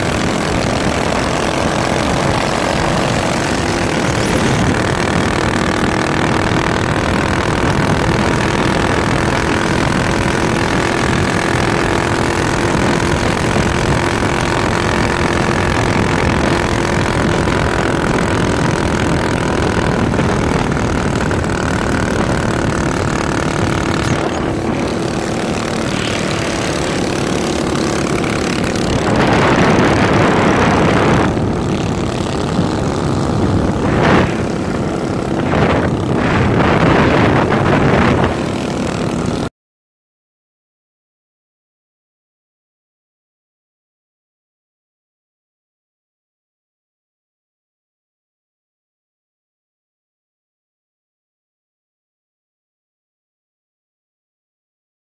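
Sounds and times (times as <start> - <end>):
small engine running: 0.0 - 39.5.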